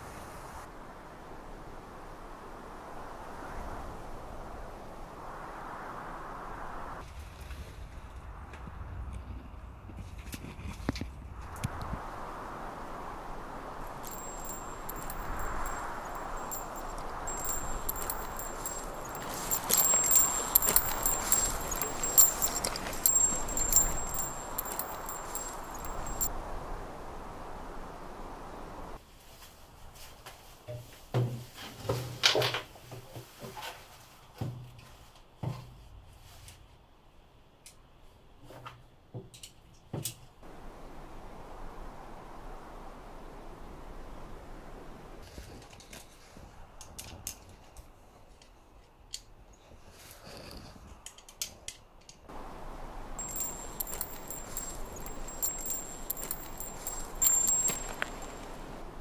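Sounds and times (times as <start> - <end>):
steady hiss: 0.0 - 7.0, 11.4 - 29.4, 52.3 - 59.0
metallic jingling and ringing: 13.7 - 26.3, 52.3 - 59.0.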